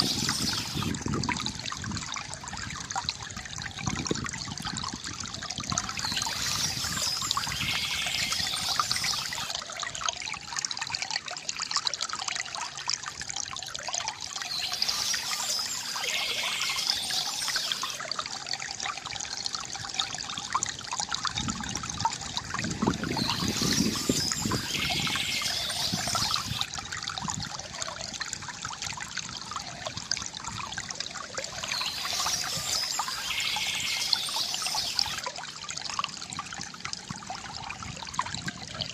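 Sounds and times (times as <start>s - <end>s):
stream trickling over stones: 0.0s - 38.9s.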